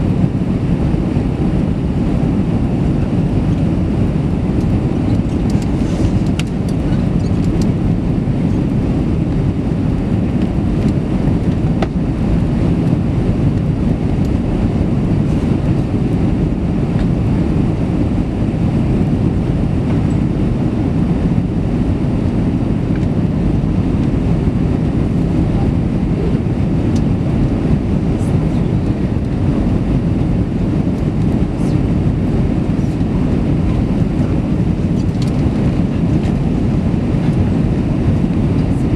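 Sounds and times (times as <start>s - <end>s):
airplane cabin engine rumble: 0.0s - 38.9s.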